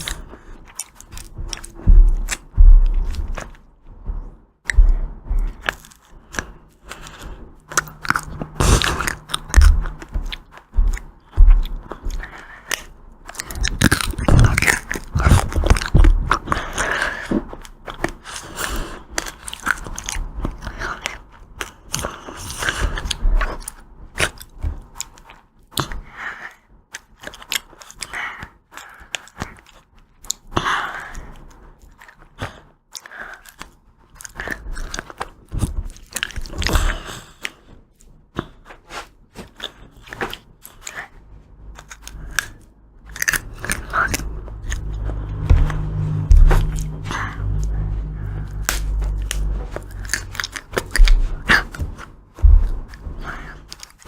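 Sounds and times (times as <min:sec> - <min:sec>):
wet chewing and mouth sounds: 0:00.0 - 0:54.0
crunchy bites cracking: 0:04.7 - 0:26.0, 0:38.4 - 0:54.0.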